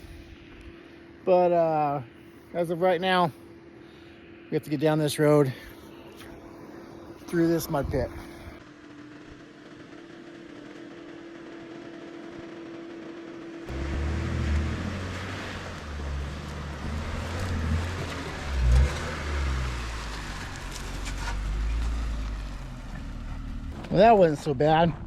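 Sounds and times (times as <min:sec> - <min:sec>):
vehicle engine working hard: 0:05.7 - 0:25.0.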